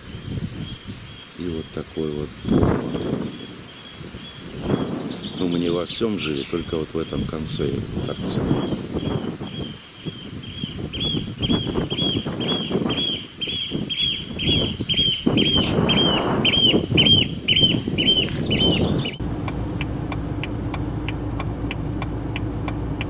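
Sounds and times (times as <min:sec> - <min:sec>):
bird calling: 0:00.0 - 0:23.0
rumbling background noise: 0:15.4 - 0:23.0
car humming on the road: 0:18.2 - 0:23.0.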